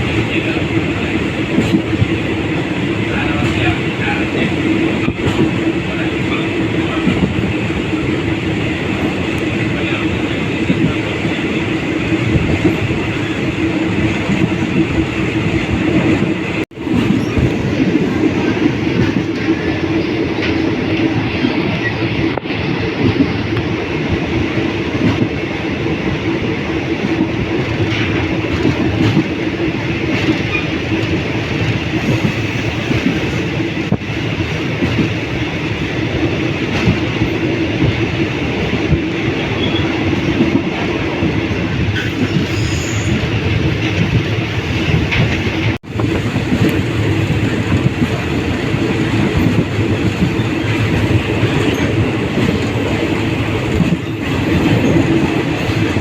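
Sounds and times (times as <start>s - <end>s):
clickety-clack over rail joints: 0.0s - 56.0s
train rumbling along rails: 0.0s - 56.0s.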